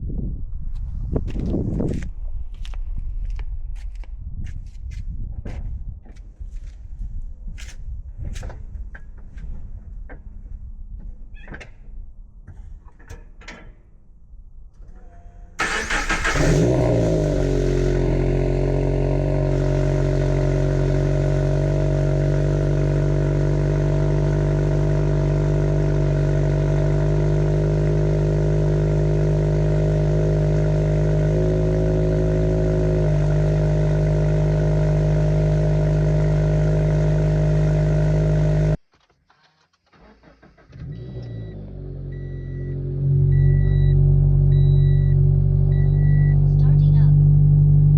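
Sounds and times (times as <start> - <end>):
car engine starting and idling: 15.6 - 38.8, 39.8 - 47.9.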